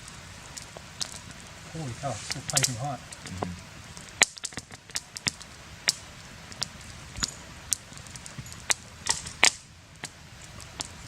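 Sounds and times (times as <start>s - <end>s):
campfire crackling: 0.0s - 11.0s
faint steady hiss: 0.0s - 11.0s.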